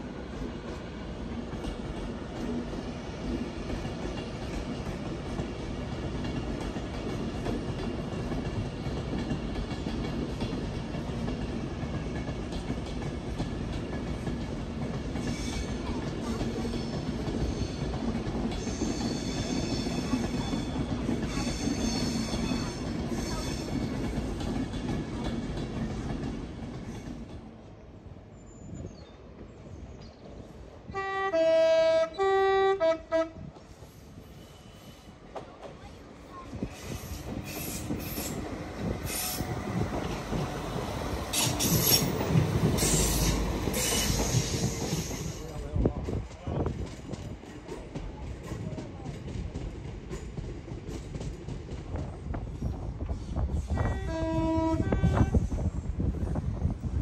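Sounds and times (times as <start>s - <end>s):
train rolling through: 0.0s - 57.0s
train wheels squealing on rails: 15.1s - 27.4s, 28.2s - 30.6s, 33.5s - 45.8s, 50.1s - 56.3s
two-tone train horn: 30.9s - 33.5s, 53.8s - 55.6s.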